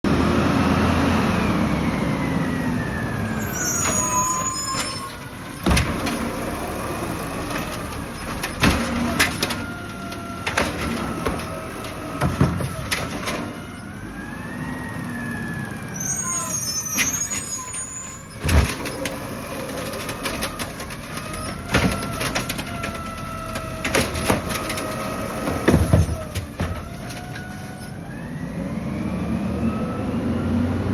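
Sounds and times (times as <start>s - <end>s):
hydraulics whining: 0.1s - 30.9s
high squeals: 3.3s - 5.3s, 15.9s - 19.0s
cart knocking and thudding: 3.8s - 13.7s, 18.4s - 27.8s.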